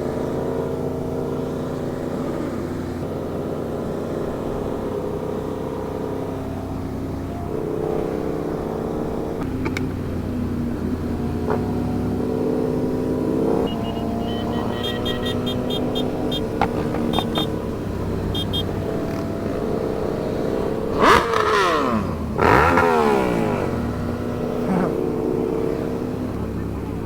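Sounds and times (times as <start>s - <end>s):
engines passing by: 0.0s - 27.0s
motorcycle engine running: 0.0s - 27.0s
short high beeps: 13.5s - 17.6s, 18.3s - 18.8s.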